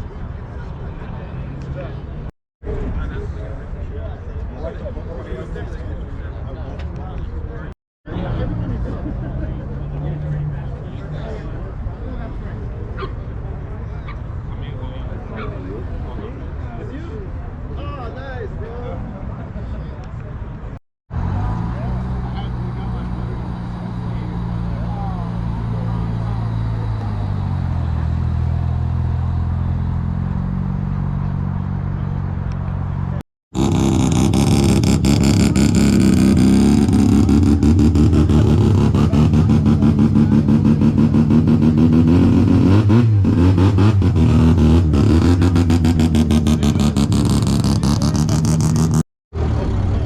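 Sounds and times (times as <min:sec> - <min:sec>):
rotary engine revving: 0:21.1 - 0:32.2, 0:33.6 - 0:50.0.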